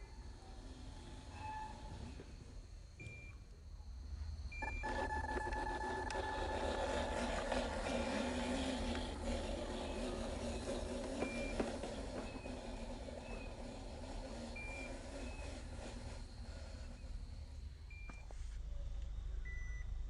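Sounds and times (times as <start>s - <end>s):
small electric motor straining: 0.0s - 2.2s, 4.6s - 17.6s.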